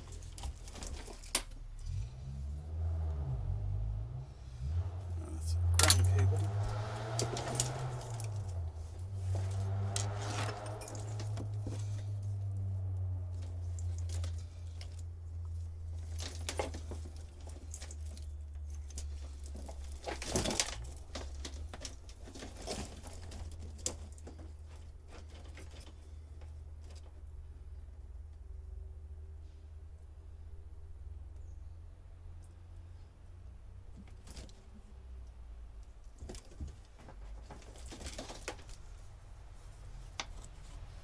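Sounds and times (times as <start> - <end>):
wiring and cables rustling: 0.0 - 2.5, 4.9 - 28.0, 35.8 - 41.0.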